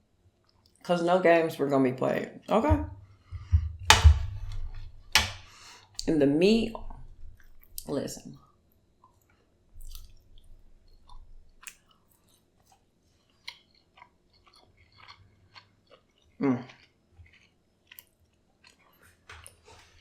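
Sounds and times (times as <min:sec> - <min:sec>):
mouth clicks and smacks: 0:09.8 - 0:11.9
person chewing and eating: 0:09.8 - 0:20.0.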